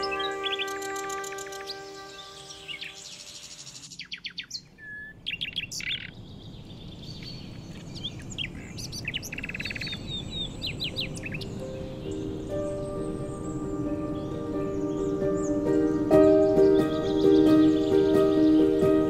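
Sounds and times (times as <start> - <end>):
music: 0.0 - 3.8, 11.0 - 19.0
songbirds chirping and singing: 0.0 - 19.0.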